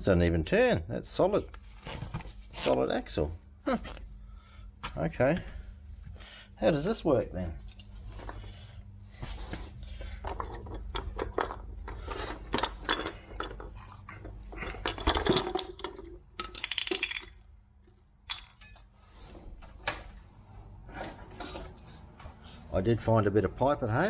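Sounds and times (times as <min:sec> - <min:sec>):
steady low hum: 0:00.0 - 0:24.0
metal clatter: 0:10.4 - 0:17.4
metal parts clinking: 0:10.4 - 0:17.4, 0:18.3 - 0:18.9.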